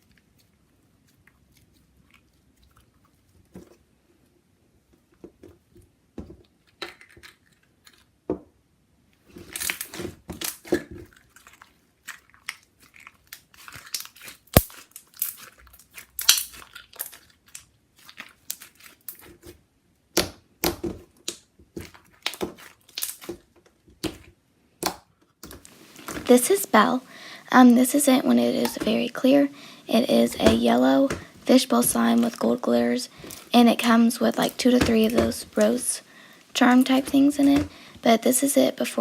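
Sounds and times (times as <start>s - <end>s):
slime squelching and popping: 9.4s - 38.1s.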